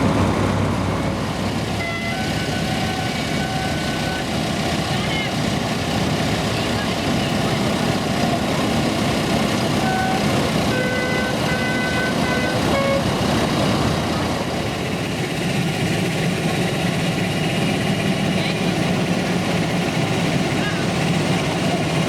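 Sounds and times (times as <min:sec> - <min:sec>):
tractor engines running: 0:00.0 - 0:22.0
horn playing notes: 0:01.7 - 0:04.4, 0:09.7 - 0:13.2.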